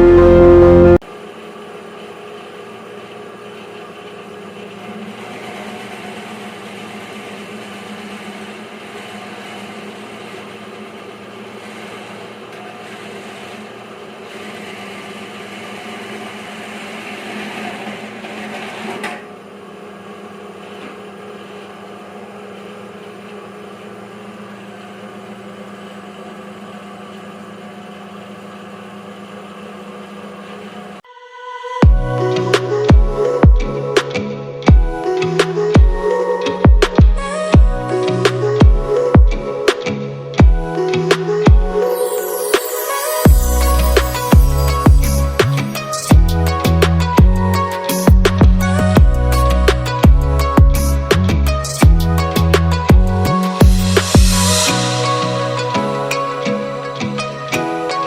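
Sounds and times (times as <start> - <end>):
shredding machine motor hum: 0.0 - 31.0.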